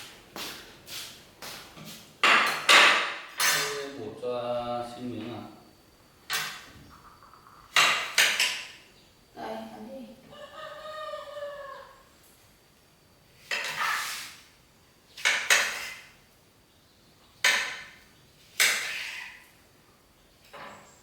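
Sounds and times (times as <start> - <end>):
kitchenware clattering: 2.2 - 4.0.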